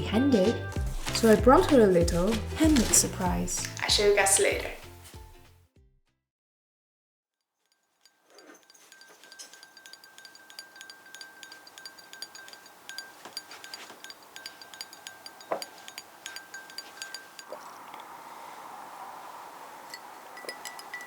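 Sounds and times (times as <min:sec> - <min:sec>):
small chimes tinkling: 0:07.7 - 0:18.0, 0:19.9 - 0:21.0.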